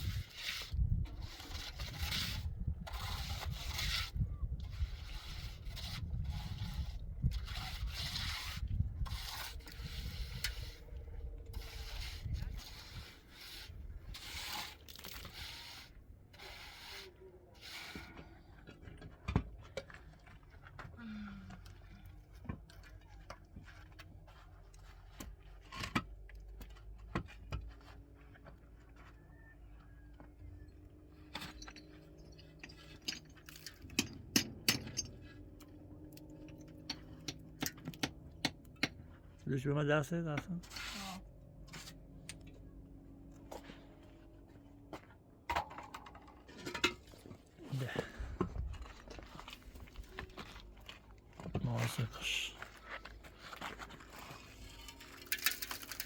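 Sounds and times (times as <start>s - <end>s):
hand tool scraping rough surface: 0.0s - 20.8s, 40.4s - 42.2s, 43.4s - 56.0s.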